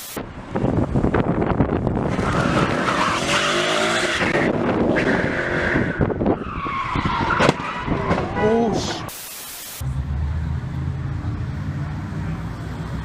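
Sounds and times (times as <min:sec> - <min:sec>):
car tyres squealing: 0:02.0 - 0:09.1.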